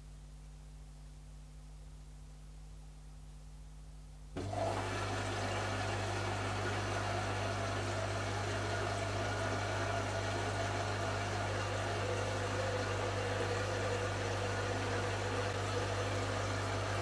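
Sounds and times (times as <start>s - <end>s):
washing machine hum: 4.3s - 17.0s
water rushing in washing machine: 4.4s - 17.0s.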